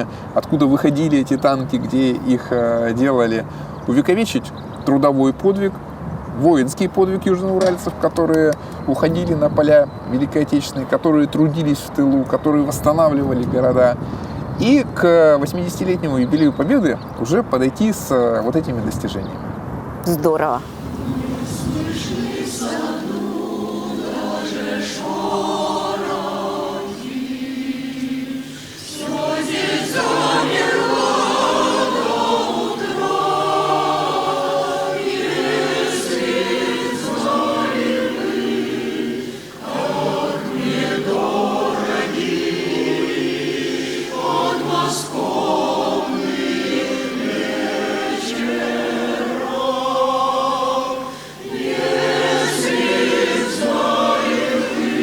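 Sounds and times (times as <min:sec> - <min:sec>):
choir singing: 0:20.6 - 0:55.0.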